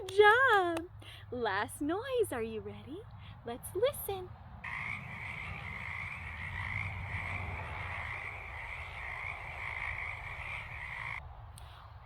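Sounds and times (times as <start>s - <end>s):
frogs calling in chorus: 4.6s - 11.2s.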